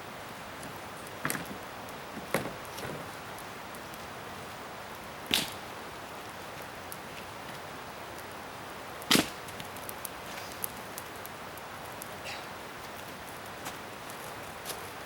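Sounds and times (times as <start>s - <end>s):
faint small crackles: 0.6s - 8.4s, 9.0s - 15.0s
sharp cracks of wood: 5.2s - 5.7s, 9.0s - 12.5s.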